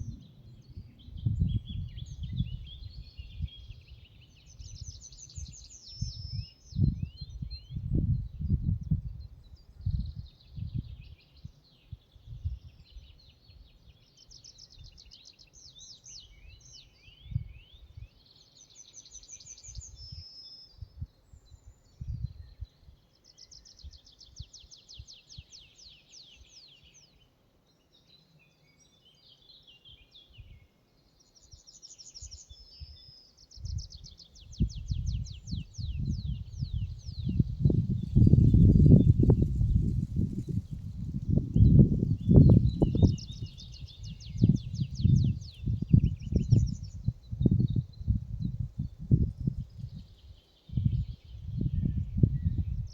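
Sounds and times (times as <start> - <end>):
songbirds singing: 0.0 - 52.9.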